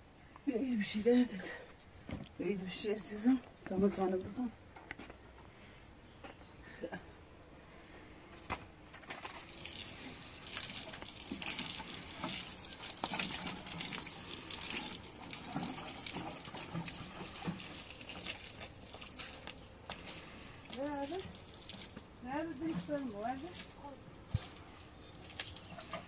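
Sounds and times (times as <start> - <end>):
water running and splashing: 9.3 - 26.0.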